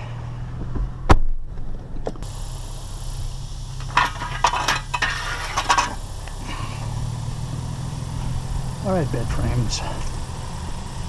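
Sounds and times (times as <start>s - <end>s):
truck engine idling: 0.0s - 11.0s
metal scrap clinking and rattling: 3.8s - 6.0s.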